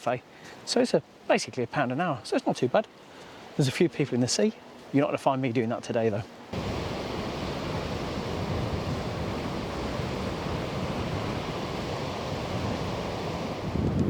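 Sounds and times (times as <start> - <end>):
wind: 0.0 - 14.0
sea surf washing onto beach: 6.5 - 14.0.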